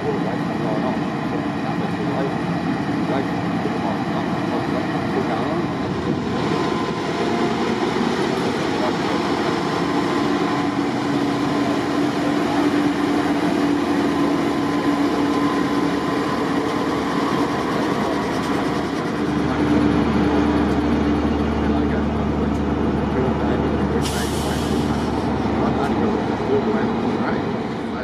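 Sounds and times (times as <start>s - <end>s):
passenger train rolling rumble: 0.0s - 28.0s.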